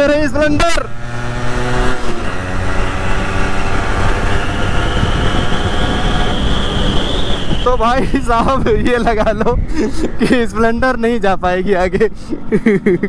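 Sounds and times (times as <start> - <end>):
motorcycle engine at speed: 0.0 - 7.8.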